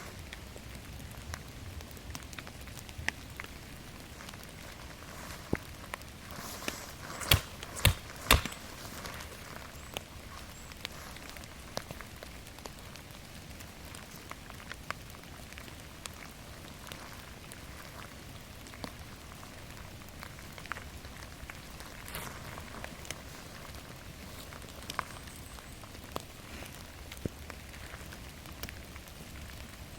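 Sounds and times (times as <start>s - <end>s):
rain falling in forest: 0.0s - 29.9s
sharp knocks: 7.2s - 8.6s.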